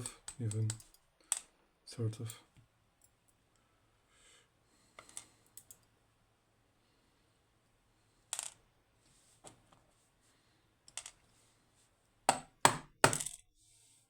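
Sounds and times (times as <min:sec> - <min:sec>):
small metal parts clicking: 0:00.2 - 0:01.5.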